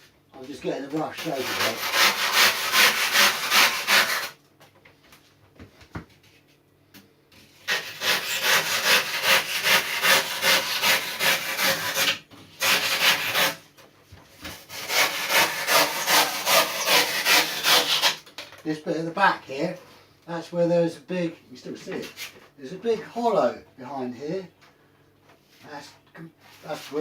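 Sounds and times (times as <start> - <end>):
hand saw cutting foam: 1.1 - 4.4, 7.6 - 13.6, 14.4 - 18.2.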